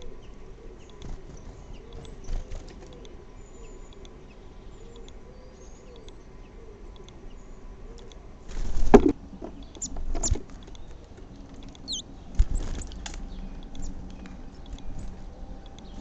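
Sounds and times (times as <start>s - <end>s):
birds rustling and knocking: 8.5s - 13.3s.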